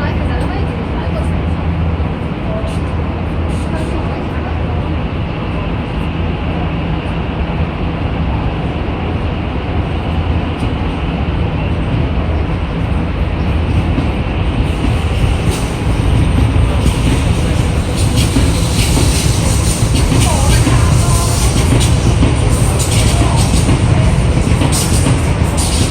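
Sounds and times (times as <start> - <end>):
electric train rumbling: 0.0 - 25.9
train wheels rolling: 11.9 - 25.9.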